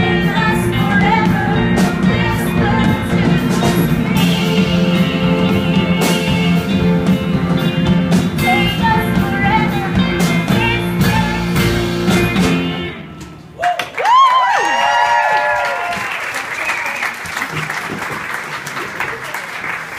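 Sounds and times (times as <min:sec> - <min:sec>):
live rock band playing: 0:00.0 - 0:13.6.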